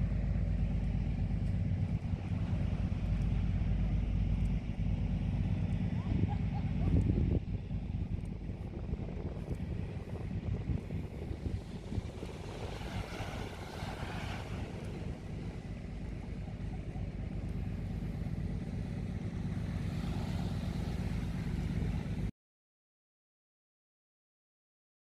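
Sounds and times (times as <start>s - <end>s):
wind rumble on microphone: 0.0s - 22.3s
waves washing onto beach: 8.4s - 22.3s.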